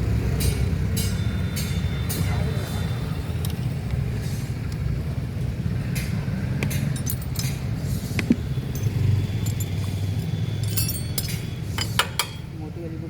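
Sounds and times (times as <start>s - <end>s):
metallic clinks of tools: 6.7s - 7.9s, 8.6s - 12.5s.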